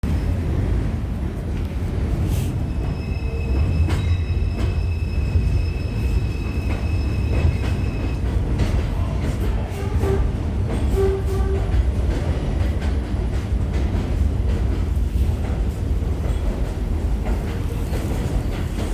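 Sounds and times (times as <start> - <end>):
subway train rumbling: 0.0 - 18.9
high wheel squeal: 2.7 - 8.2.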